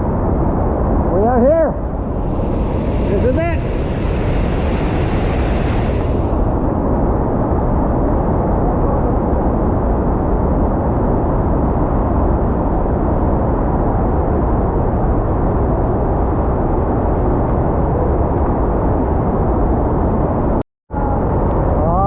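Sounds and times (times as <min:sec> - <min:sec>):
vehicle rumble: 0:02.0 - 0:07.2.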